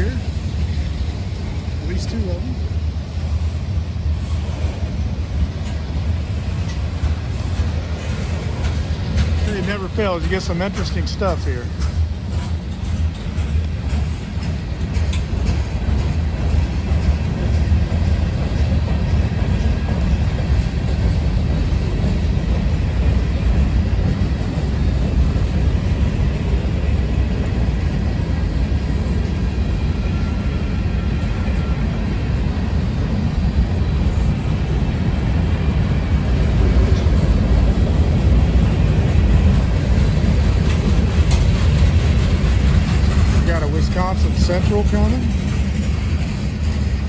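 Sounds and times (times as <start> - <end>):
freight train wheels rumbling: 0.0 - 47.0.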